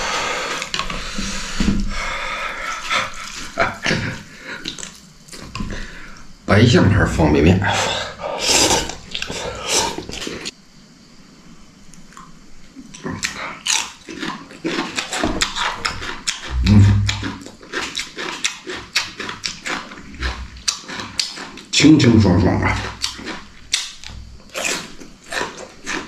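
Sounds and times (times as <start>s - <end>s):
wet chewing and crunching: 2.6s - 5.9s, 8.7s - 10.5s, 11.9s - 26.0s
person grunting: 16.5s - 17.2s.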